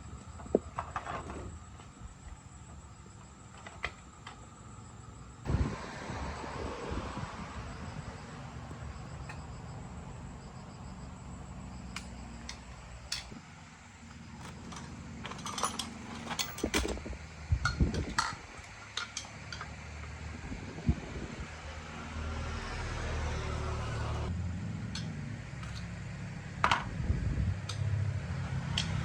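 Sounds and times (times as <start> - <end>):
metal tools clinking and clanking: 11.9 - 13.4, 14.2 - 20.2, 24.9 - 25.9.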